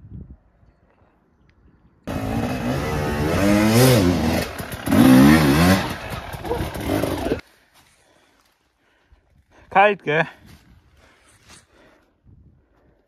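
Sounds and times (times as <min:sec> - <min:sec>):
motorcycle engine revving: 0:02.1 - 0:07.4.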